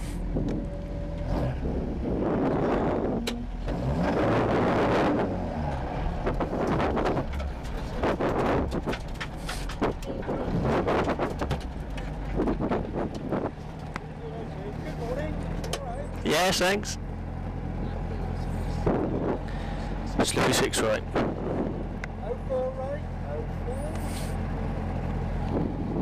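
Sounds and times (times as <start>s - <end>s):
car engine running: 0.0s - 26.0s
knocks and rattles: 5.8s - 14.0s.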